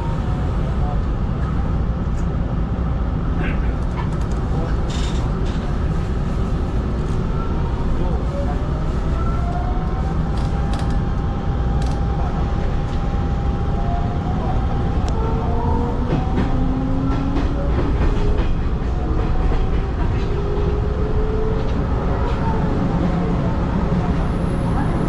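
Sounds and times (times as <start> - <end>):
train low rumble: 0.0 - 25.0.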